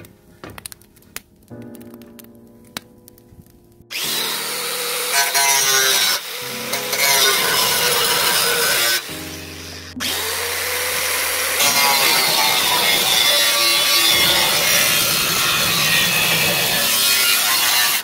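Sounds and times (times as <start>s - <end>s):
power tool cutting: 3.9s - 18.0s.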